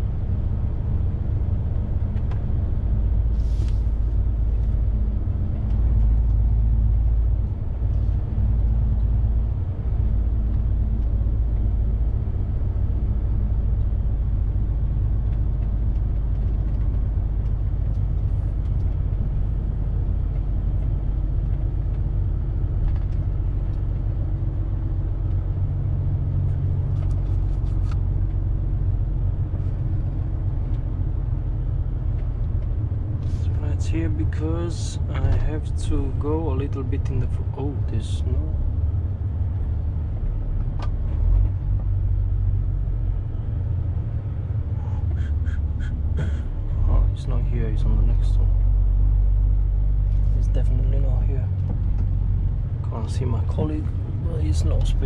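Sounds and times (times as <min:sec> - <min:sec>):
truck diesel engine drone: 0:00.0 - 0:55.0.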